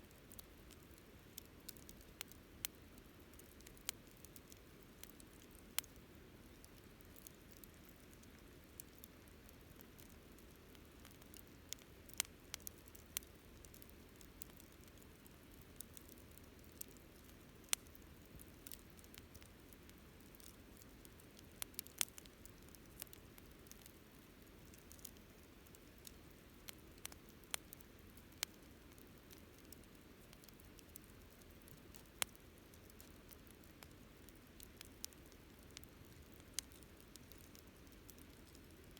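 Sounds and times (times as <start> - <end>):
fire crackles and pops: 0.0 - 38.9
campfire flames hissing: 11.1 - 14.2, 14.8 - 23.9.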